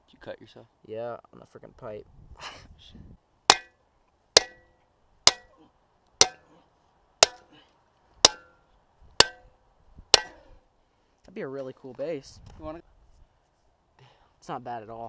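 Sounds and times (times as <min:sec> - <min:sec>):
hammer striking metal: 0:03.5 - 0:03.8, 0:04.4 - 0:04.7, 0:05.3 - 0:05.5, 0:06.2 - 0:06.4, 0:07.2 - 0:07.5, 0:08.2 - 0:08.5, 0:09.2 - 0:09.5, 0:10.2 - 0:10.4.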